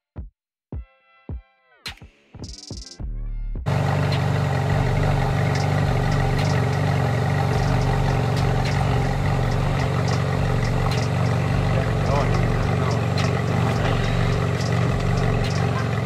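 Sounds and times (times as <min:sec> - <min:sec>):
car engine idling: 0:03.7 - 0:16.0.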